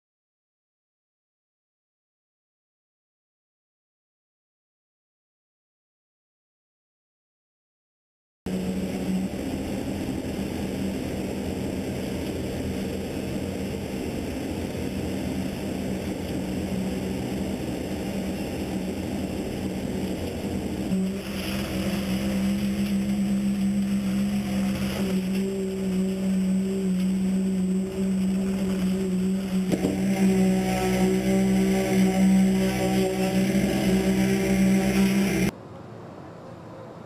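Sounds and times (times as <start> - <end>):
construction machinery engine humming: 8.5 - 35.5.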